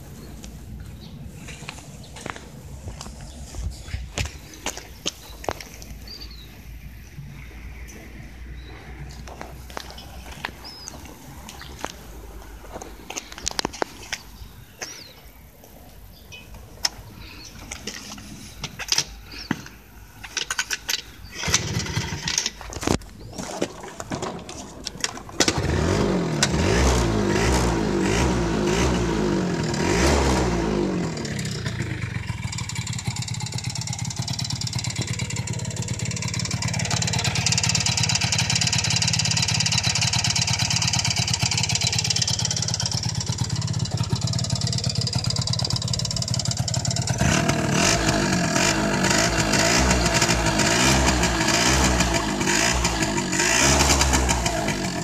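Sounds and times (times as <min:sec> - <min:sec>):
scooter engine cranking: 0:20.3 - 0:55.0
scooter engine running: 0:21.4 - 0:22.4, 0:25.4 - 0:55.0.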